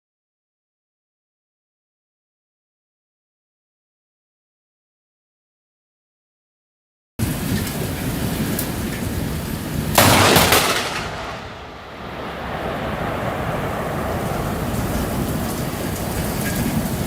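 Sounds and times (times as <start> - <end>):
heavy rain rushing: 7.2 - 17.0
loud thunder crack: 9.9 - 17.0.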